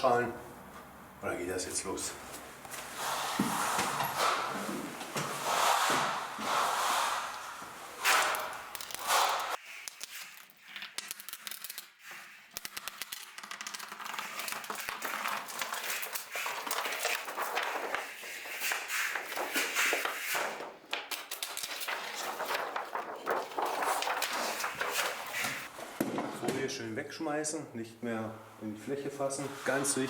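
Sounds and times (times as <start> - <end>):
plastic film crinkling: 8.1 - 25.7.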